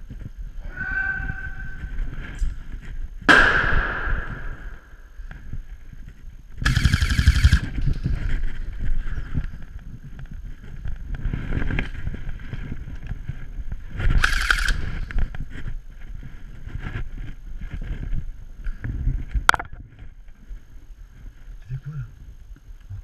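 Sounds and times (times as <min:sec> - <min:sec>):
low rumbling wind: 0:00.0 - 0:23.0
microphone handling noise: 0:07.6 - 0:20.6.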